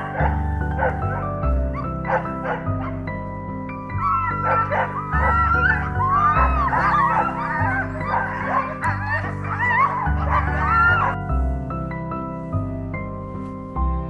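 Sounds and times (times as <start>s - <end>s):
sled dogs yelping and whining: 0.0s - 11.5s
background music: 0.0s - 14.0s.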